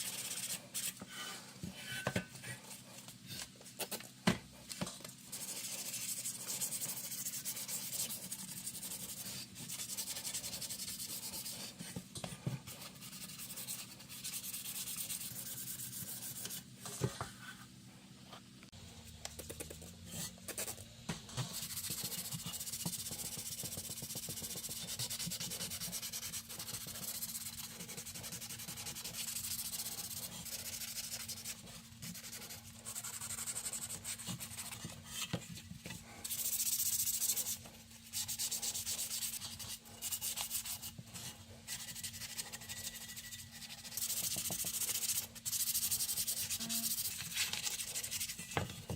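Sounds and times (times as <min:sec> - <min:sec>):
sandpaper rubbing on metal: 0:41.7 - 0:48.5.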